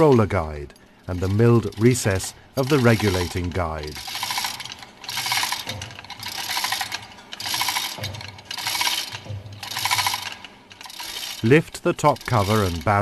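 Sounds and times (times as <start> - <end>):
ratchet wrench clicking: 1.2 - 11.4.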